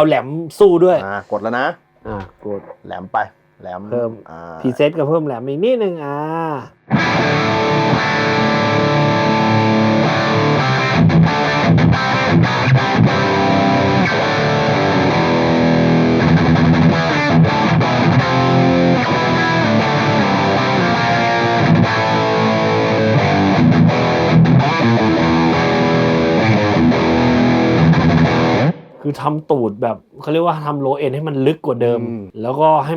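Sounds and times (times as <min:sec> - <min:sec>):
distorted electric guitar riffing: 0:06.7 - 0:29.0.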